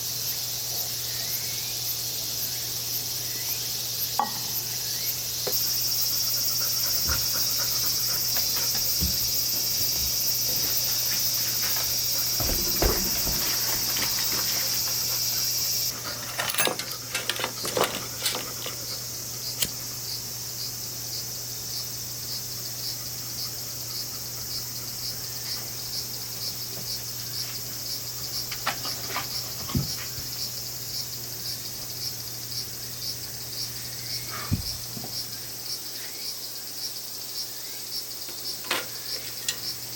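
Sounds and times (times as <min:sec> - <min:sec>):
insects singing shrill chorus: 0:00.0 - 0:39.9.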